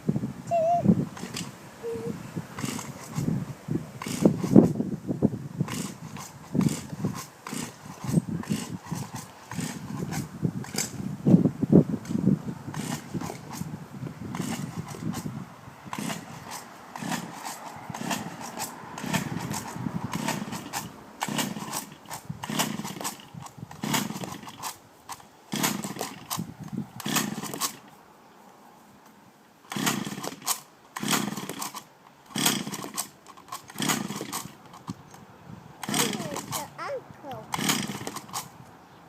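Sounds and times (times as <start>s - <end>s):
engine turning over and popping: 1.1s - 1.6s, 2.6s - 3.3s, 4.0s - 4.8s, 5.6s - 11.0s, 12.0s - 13.7s, 14.3s - 15.3s, 15.9s - 28.0s, 29.7s - 35.0s, 35.8s - 36.7s, 37.3s - 38.5s
recoil starter pulls: 1.2s - 1.6s, 2.6s - 3.3s, 4.0s - 4.8s, 5.6s - 11.0s, 12.0s - 13.7s, 14.3s - 15.3s, 15.9s - 27.9s, 29.7s - 35.2s, 35.8s - 36.7s, 37.5s - 38.5s.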